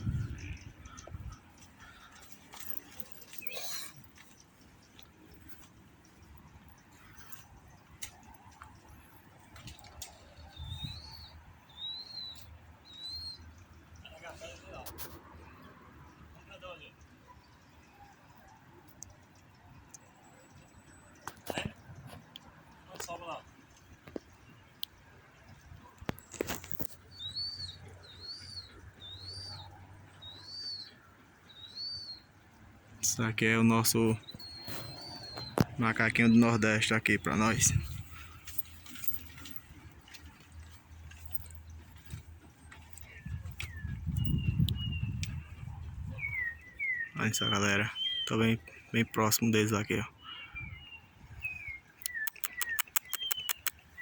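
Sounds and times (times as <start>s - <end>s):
animal whistled call: 52.0s - 53.8s.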